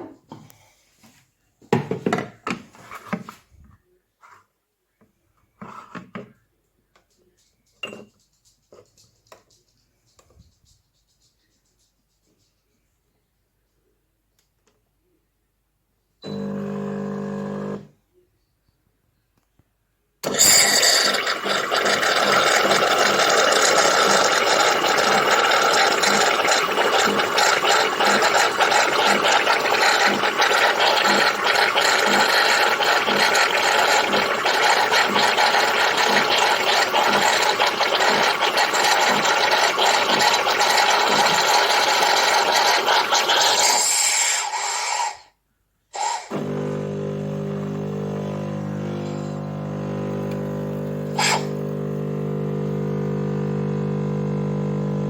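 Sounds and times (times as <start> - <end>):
espresso machine buzzing: 16.2 - 17.9, 20.2 - 44.2, 46.0 - 55.0
espresso machine hissing: 20.2 - 45.2, 46.0 - 55.0.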